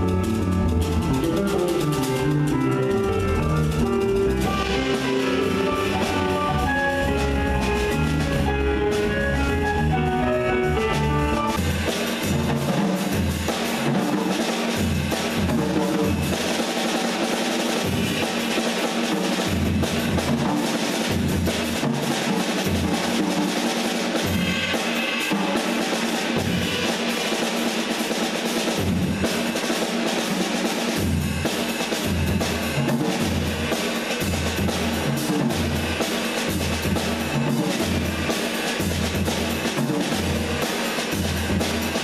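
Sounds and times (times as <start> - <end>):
low bass notes: 0.0 - 11.6
drum hits: 0.0 - 42.0
jazz group playing: 0.0 - 42.0.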